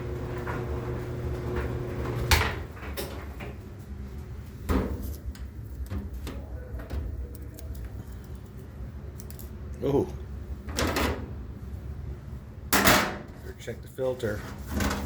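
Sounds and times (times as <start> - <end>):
clothes dryer humming: 0.0 - 6.2
light clicks and handling noises: 5.2 - 9.6.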